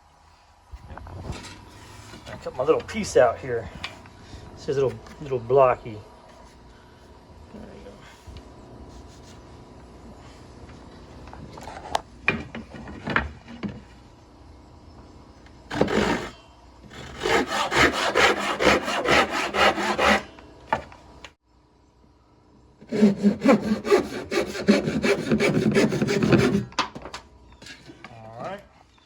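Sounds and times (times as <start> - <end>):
handsaw cutting wood: 15.7 - 20.3, 22.8 - 26.7.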